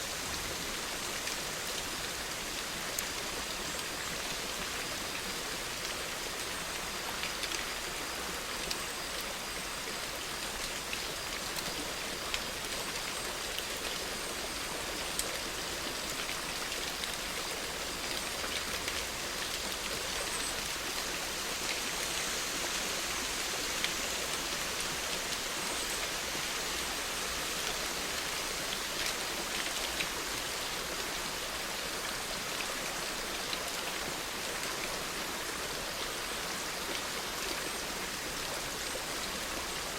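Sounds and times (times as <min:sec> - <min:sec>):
steady rain falling: 0:00.0 - 0:39.9
raindrops ticking: 0:10.2 - 0:22.0.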